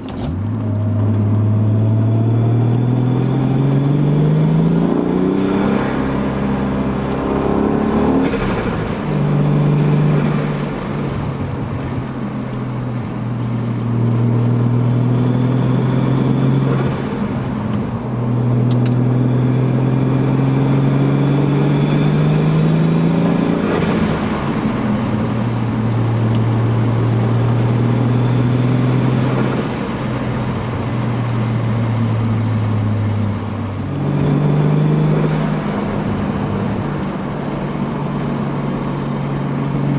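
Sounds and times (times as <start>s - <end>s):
car engine running with gear changes: 0.0s - 39.9s.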